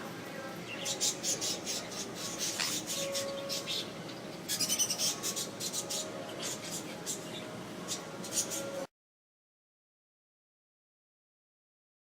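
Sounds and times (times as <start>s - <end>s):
pet bird chirping and clicking: 0.9s - 3.8s.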